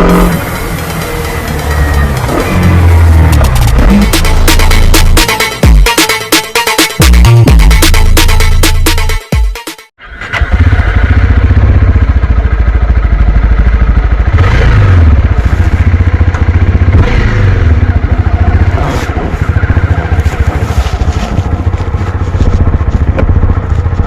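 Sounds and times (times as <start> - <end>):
motorcycle engine revving: 0.0 - 5.7, 10.0 - 24.0
intro music: 0.0 - 9.9.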